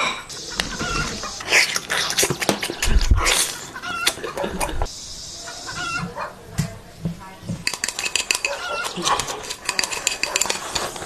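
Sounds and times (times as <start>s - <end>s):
chicken clucking: 0.3s - 6.7s, 7.8s - 11.0s
scattered clicks and knocks: 7.5s - 11.0s.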